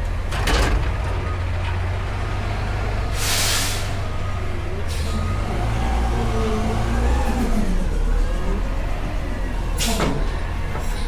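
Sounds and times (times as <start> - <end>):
truck diesel engine revving: 1.8 - 11.0
sharp air hiss: 3.2 - 4.0.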